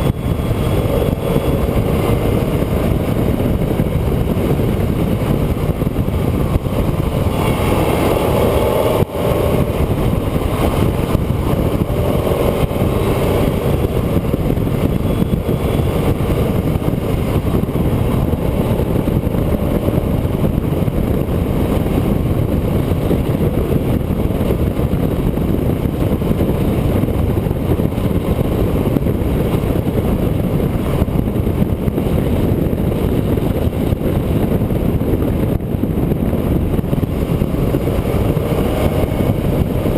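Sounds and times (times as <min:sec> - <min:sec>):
vehicle driving at speed: 0:00.0 - 0:39.9.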